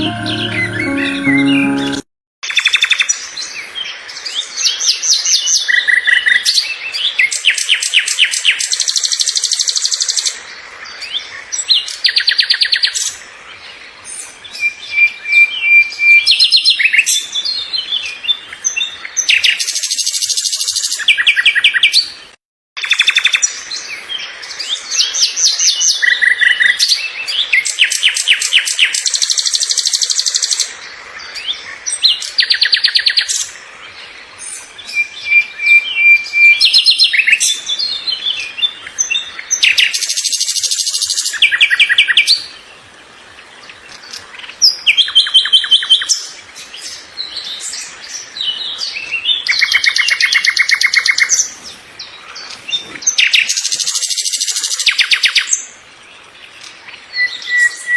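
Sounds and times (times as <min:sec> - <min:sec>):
songbird trilling and chirping: 0:34.4 - 0:42.6, 0:43.8 - 0:55.7, 0:56.5 - 0:57.9.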